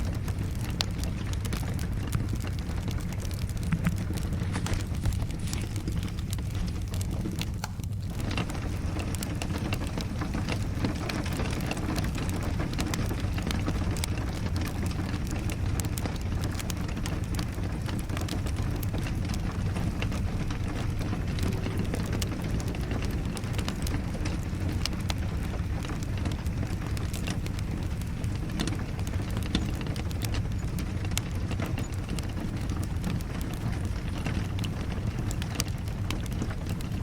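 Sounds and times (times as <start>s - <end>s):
steady rain: 0.0s - 37.0s
wood fire crackling and popping: 0.0s - 37.0s.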